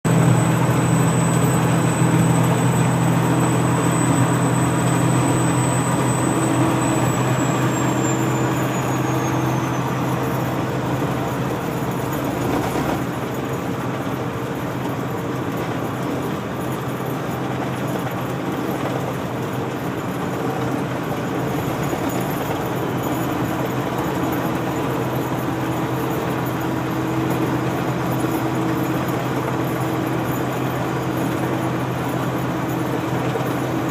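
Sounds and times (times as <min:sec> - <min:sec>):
diesel engine running: 0:00.0 - 0:33.9
high whine: 0:00.1 - 0:13.1.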